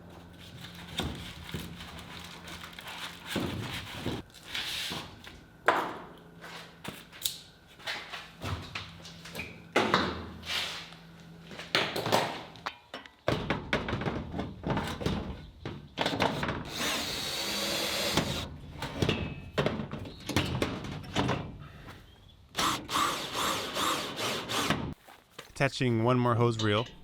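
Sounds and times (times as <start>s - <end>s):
power drill running: 16.7s - 18.5s, 22.6s - 24.8s.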